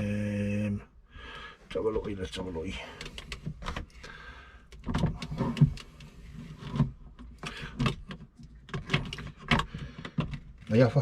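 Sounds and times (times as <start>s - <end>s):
plastic clicks and knocks: 4.7s - 10.7s
plastic scrape: 5.0s - 8.1s.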